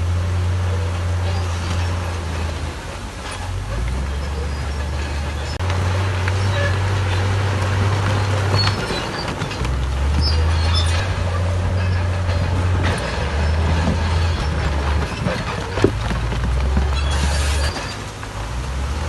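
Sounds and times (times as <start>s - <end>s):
diesel machinery engine drone: 0.0s - 19.0s
high squeaks: 0.6s - 18.2s
metallic knocks: 4.8s - 18.3s.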